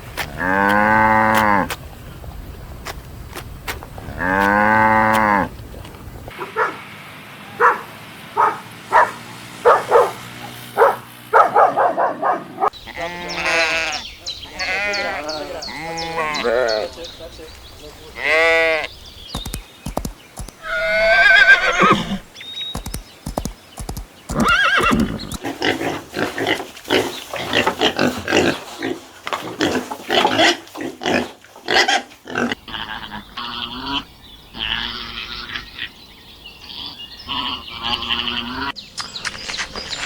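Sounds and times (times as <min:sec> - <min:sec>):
pulsing animal calls: 0:06.3 - 0:14.0, 0:18.3 - 0:26.3
horse whinny: 0:20.6 - 0:22.3, 0:24.3 - 0:25.4.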